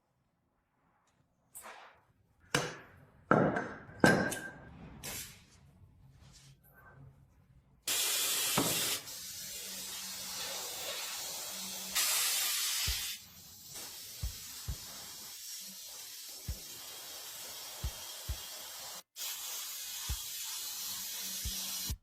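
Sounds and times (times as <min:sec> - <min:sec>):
high-pressure spray hissing: 0:07.9 - 0:22.0.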